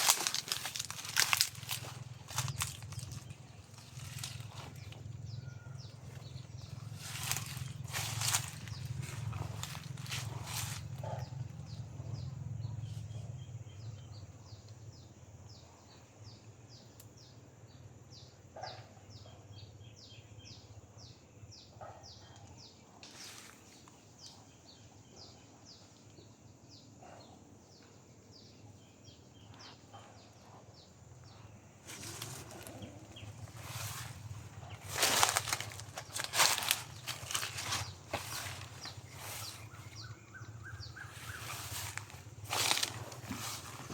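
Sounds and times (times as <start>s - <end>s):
loud rustling: 0.0s - 5.0s, 5.9s - 11.0s, 31.9s - 43.9s
bird chirping: 27.8s - 43.9s.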